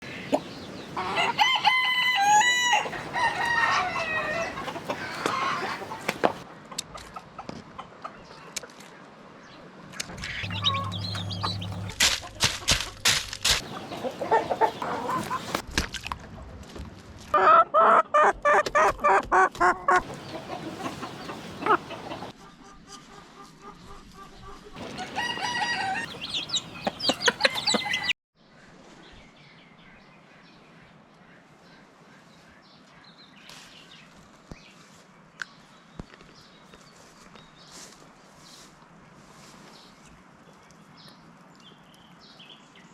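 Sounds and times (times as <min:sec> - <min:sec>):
chickens clucking: 0:00.1 - 0:01.6, 0:02.8 - 0:08.4, 0:10.0 - 0:15.6, 0:17.4 - 0:28.2
rooster crowing: 0:01.0 - 0:05.8, 0:24.8 - 0:28.1
distant bird calls: 0:10.0 - 0:13.0, 0:13.6 - 0:15.6, 0:24.2 - 0:28.7.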